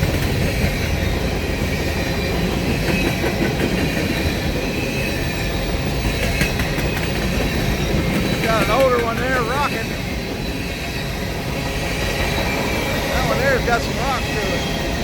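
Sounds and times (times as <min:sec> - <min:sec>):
train wheels rumbling on rails: 0:00.0 - 0:15.0
faint high wheel squeal: 0:07.4 - 0:15.0.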